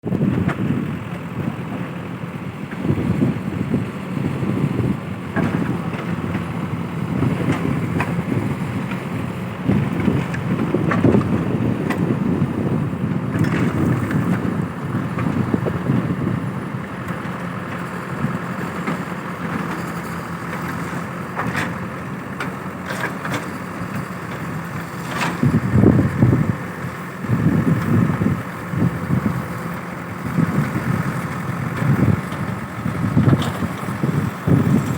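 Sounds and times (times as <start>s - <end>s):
wind buffeting microphone: 0.0s - 1.6s, 2.5s - 18.7s, 23.6s - 34.9s
truck engine rumbling: 0.0s - 34.9s.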